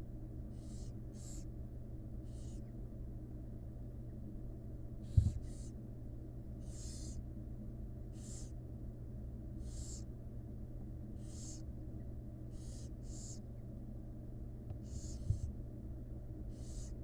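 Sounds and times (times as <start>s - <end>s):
steady low hum: 0.0s - 17.0s
owl chicks hissing begging calls: 0.5s - 1.5s, 2.2s - 2.7s, 5.0s - 5.8s, 6.6s - 7.2s, 8.1s - 8.6s, 9.6s - 10.1s, 11.2s - 11.7s, 12.5s - 13.5s, 14.8s - 15.5s, 16.5s - 17.0s.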